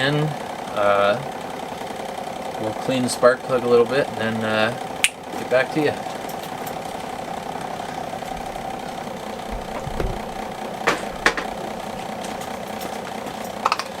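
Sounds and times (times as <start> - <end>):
electric fan humming: 3.5 - 14.0.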